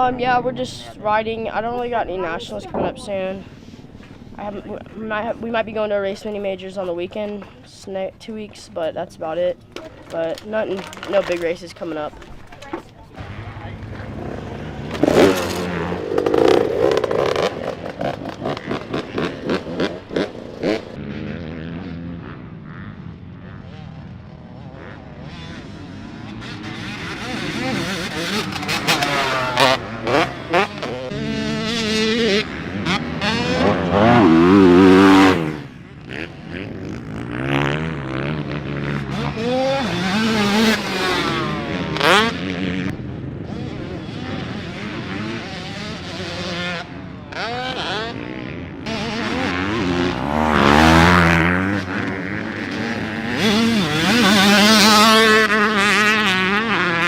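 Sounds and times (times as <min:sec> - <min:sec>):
dirt bike engine revving: 0:13.2 - 0:57.0.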